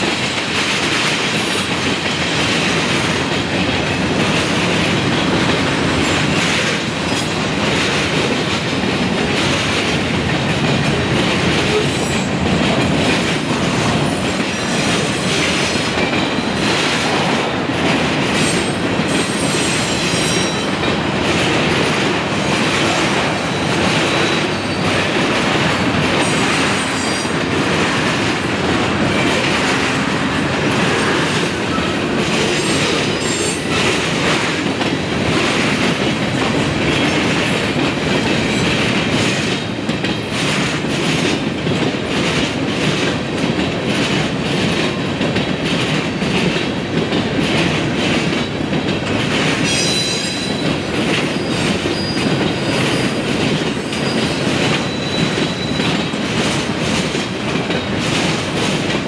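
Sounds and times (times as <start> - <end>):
freight train rumble: 0.0 - 59.0
wheels clacking over rail joints: 0.0 - 59.0
high wheel squeal: 53.9 - 56.0.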